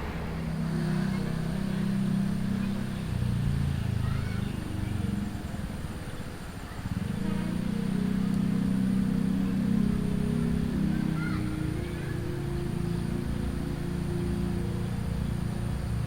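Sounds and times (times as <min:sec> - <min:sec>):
diesel train engine drone: 0:00.0 - 0:16.0.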